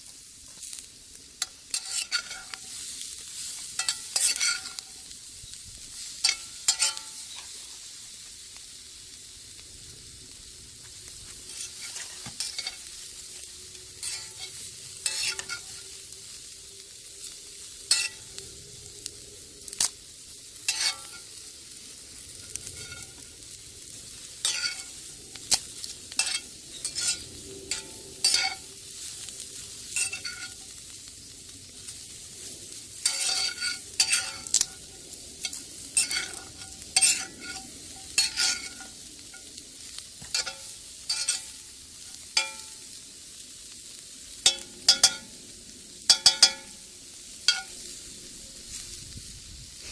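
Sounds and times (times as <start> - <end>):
batter sizzling in a skillet: 0.0 - 49.9
utensil scraping and tapping pan: 1.4 - 2.7, 3.7 - 4.9, 6.2 - 7.6, 11.5 - 12.9, 14.0 - 15.8, 20.7 - 21.2, 30.0 - 30.6, 33.0 - 34.8, 35.4 - 38.9, 40.2 - 41.5, 46.1 - 46.8, 47.5 - 47.8.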